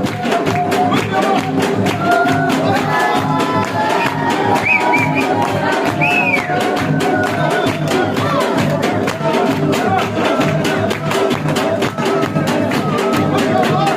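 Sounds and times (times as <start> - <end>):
drums beating fast rhythm: 0.0 - 13.9.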